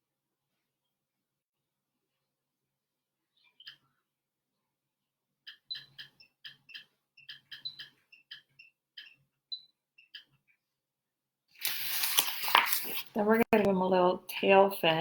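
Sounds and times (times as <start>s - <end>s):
paper rustling: 11.6s - 13.7s.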